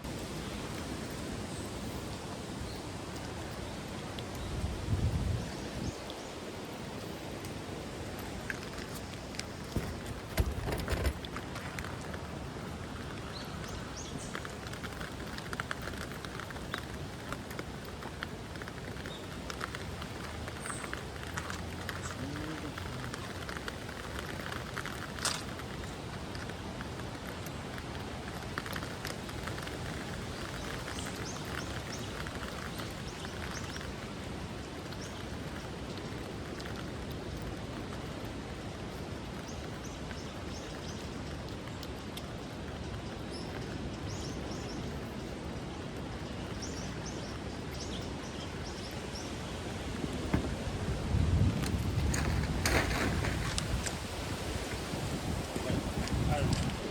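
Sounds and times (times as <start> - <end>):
steady rain: 0.0 - 56.9
small irregular clicks: 7.4 - 44.8, 55.5 - 56.9.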